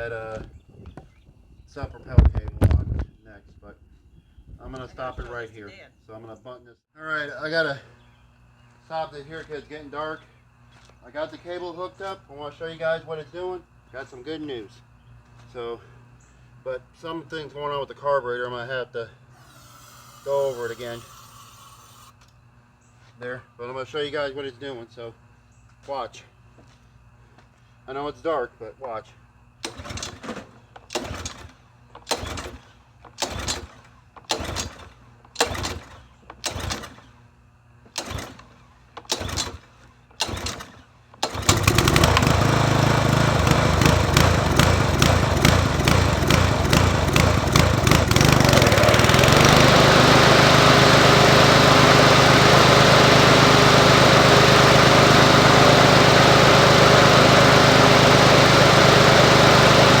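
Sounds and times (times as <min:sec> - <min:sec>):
lawn mower engine running: 0:19.2 - 0:22.2, 0:29.6 - 0:37.2, 0:37.9 - 1:00.0.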